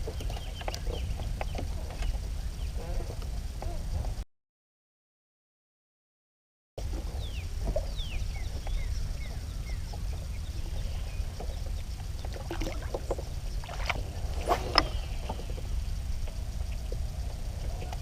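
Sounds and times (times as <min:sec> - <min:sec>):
wind rumbling on microphone: 0:00.0 - 0:04.2, 0:06.8 - 0:18.0.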